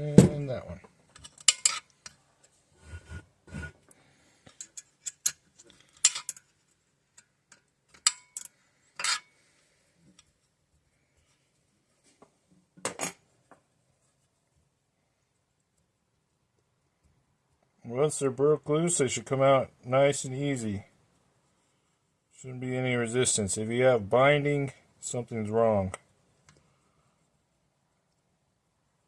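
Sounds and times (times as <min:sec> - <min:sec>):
wrench and steel bolts clinking: 0:01.1 - 0:02.2, 0:04.5 - 0:06.6, 0:07.2 - 0:09.3.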